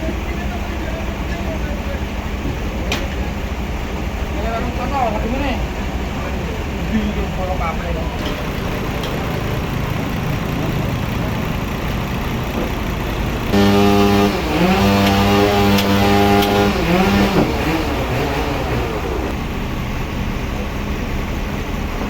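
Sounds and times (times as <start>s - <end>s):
sawmill engine running: 0.0s - 22.0s
loud even machine hum: 8.1s - 19.7s.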